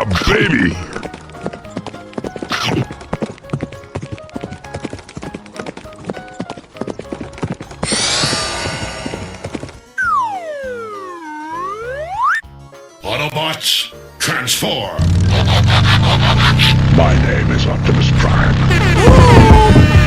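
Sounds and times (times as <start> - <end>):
cartoon galloping hooves: 0.0 - 12.4, 15.0 - 20.0
background music: 0.0 - 17.9
noisy rush: 15.0 - 20.0.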